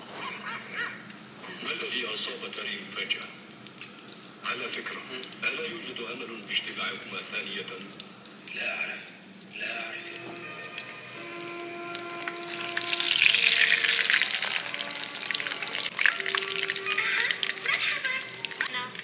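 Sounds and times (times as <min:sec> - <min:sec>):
patties sizzling in oil: 0:00.0 - 0:19.0
faint music with held notes: 0:01.0 - 0:19.0
metal tongs turning food: 0:10.2 - 0:19.0.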